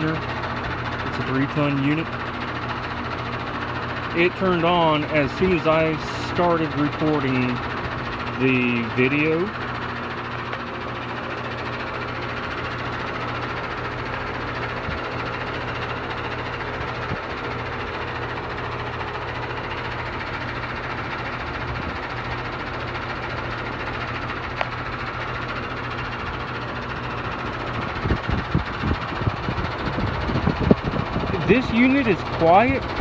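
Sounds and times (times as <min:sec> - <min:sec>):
compressor hum: 0:00.0 - 0:33.0
condenser fan whoosh: 0:26.0 - 0:33.0.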